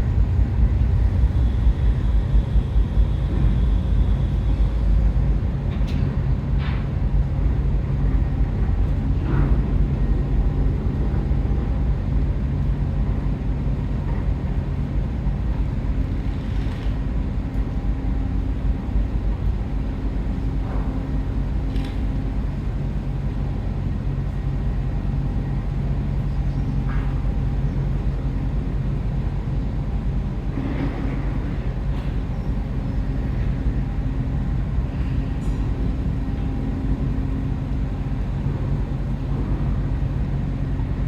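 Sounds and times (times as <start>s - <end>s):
ship engines humming: 0.0s - 14.1s.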